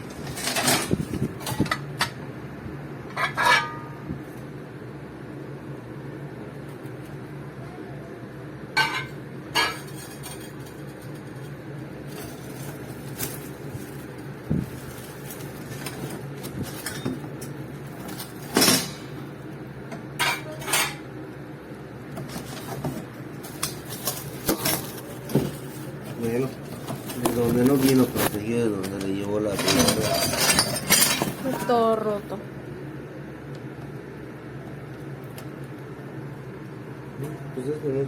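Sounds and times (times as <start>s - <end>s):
steady low hum: 0.0s - 38.0s
cookware clinking: 8.8s - 10.6s.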